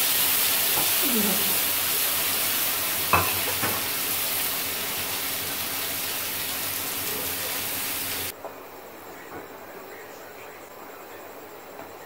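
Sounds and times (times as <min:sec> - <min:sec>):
meat sizzling in hot oil: 0:00.0 - 0:08.3.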